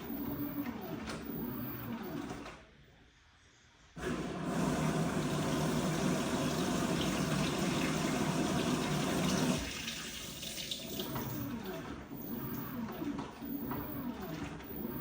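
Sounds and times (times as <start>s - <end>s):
water rushing into washing machine: 4.0s - 15.0s.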